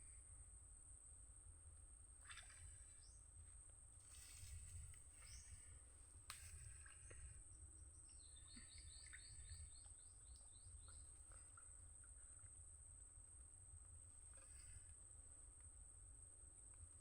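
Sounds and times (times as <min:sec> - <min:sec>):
bird chirping: 0:08.1 - 0:11.1.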